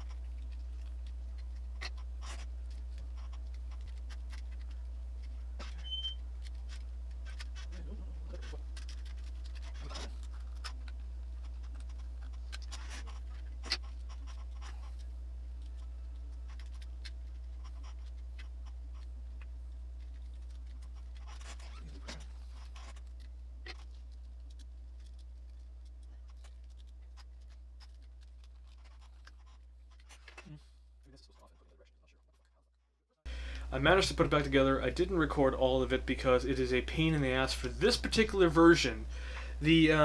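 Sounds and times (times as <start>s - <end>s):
plastic clicks and scratching: 0.0s - 30.5s
steady low hum: 0.0s - 40.0s.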